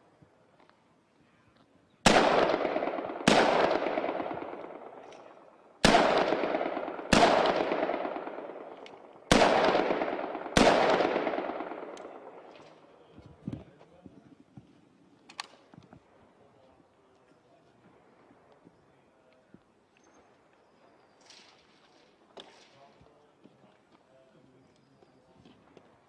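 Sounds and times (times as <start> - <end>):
rifle shots echoing: 2.0 - 12.9.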